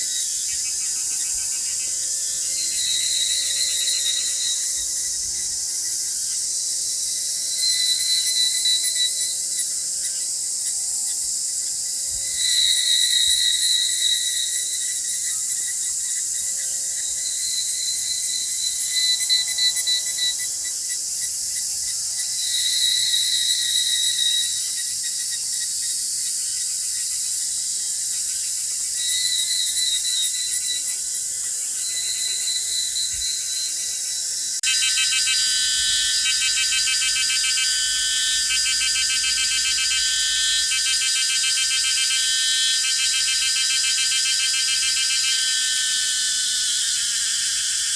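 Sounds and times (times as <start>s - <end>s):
insects calling with trills: 0.0s - 47.9s
pulsing insect buzz: 33.0s - 47.9s.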